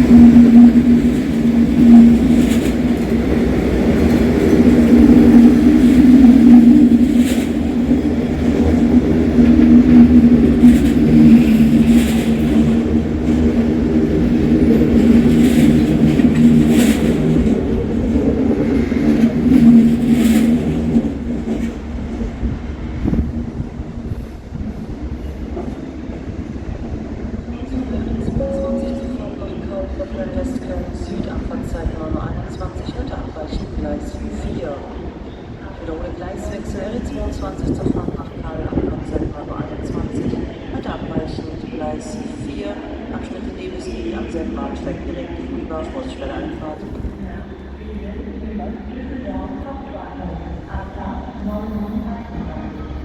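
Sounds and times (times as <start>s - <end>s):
wheels clacking over rail joints: 0.0s - 22.2s
train electric hum and rumble: 0.0s - 53.0s.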